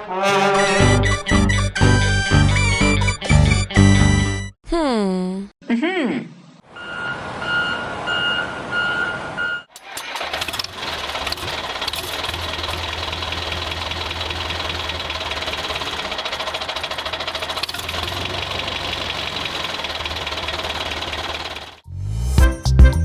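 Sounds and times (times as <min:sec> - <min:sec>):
diesel tractor engine clattering: 0:09.7 - 0:21.8.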